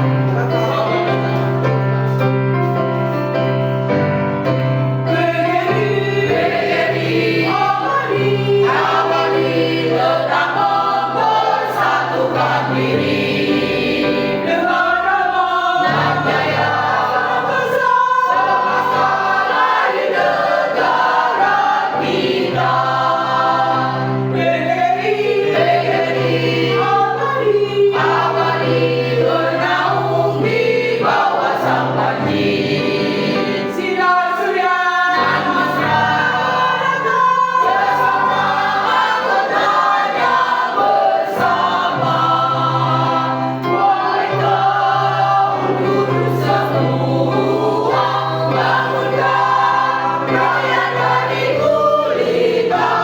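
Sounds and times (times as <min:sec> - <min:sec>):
mixed choir singing a march: 0:00.0 - 0:53.0
sustained accompaniment: 0:35.2 - 0:53.0.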